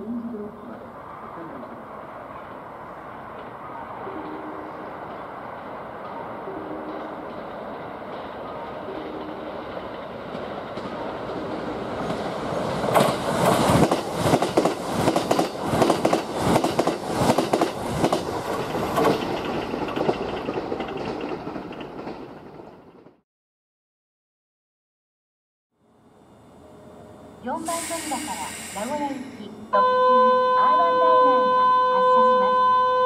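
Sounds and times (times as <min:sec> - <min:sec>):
train rumble: 0:00.0 - 0:23.2
wheels clacking over rail joints: 0:04.2 - 0:23.2.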